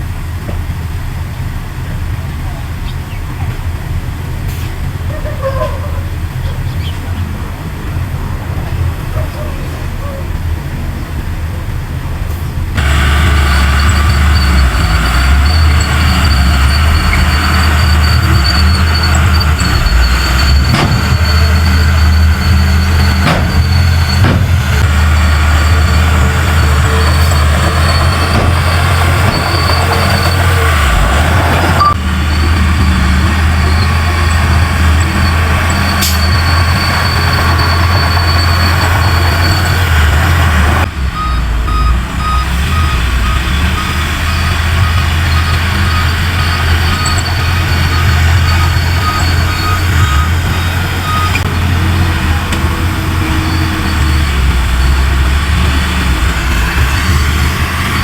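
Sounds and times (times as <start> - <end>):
bulldozer diesel engine droning: 0.0 - 58.0
high whine: 12.8 - 58.0
metallic clanks: 14.0 - 32.0, 33.5 - 37.0.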